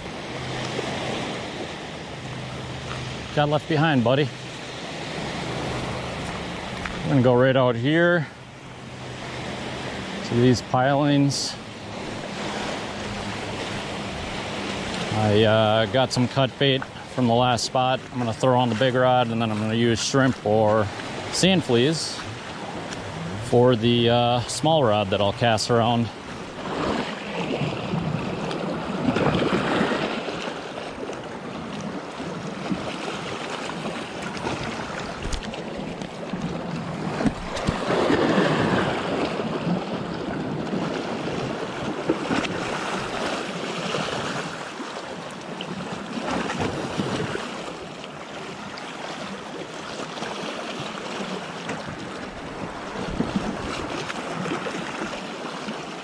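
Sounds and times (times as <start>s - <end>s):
surf washing in: 0.0s - 56.0s
wind buffeting microphone: 51.8s - 54.1s.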